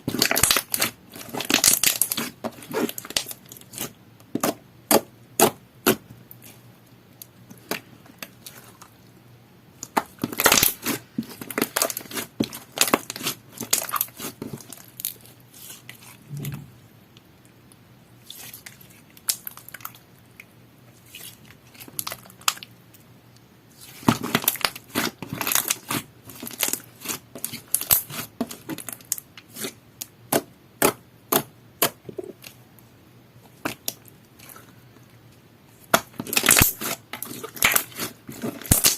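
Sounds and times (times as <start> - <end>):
hands squishing slime: 0.1 - 6.6, 9.8 - 16.6, 23.7 - 32.6, 35.8 - 38.9.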